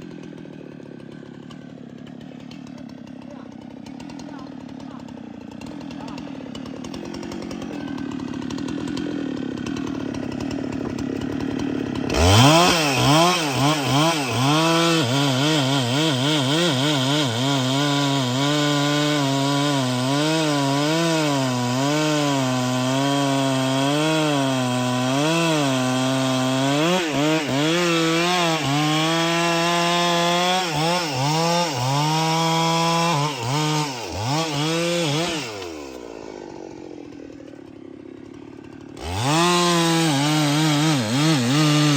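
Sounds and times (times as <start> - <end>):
chainsaw cutting into tree: 0.0 - 41.9
chainsaw idling: 0.0 - 41.9.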